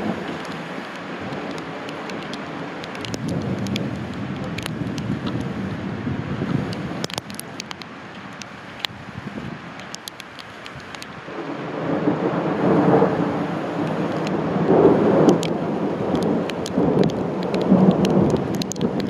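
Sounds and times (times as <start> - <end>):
thunder rumbling: 0.0 - 7.8, 11.1 - 19.0
raindrops ticking on a surface: 0.0 - 19.0
steady rain: 0.0 - 19.0.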